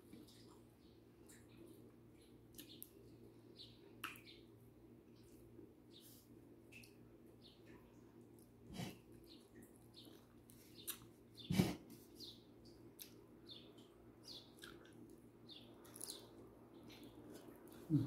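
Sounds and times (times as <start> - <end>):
low steady hum: 0.0 - 18.0
small birds chirping: 0.0 - 18.0.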